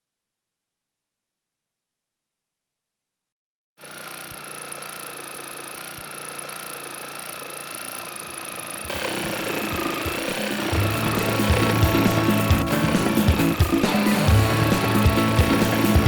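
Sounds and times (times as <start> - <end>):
jigsaw cutting wood: 3.8 - 16.0.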